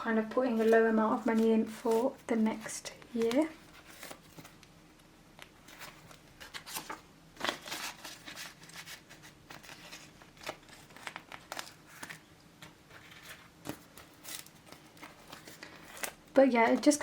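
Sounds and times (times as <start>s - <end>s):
plastic wallets crinkling: 5.7s - 12.3s, 12.9s - 17.0s.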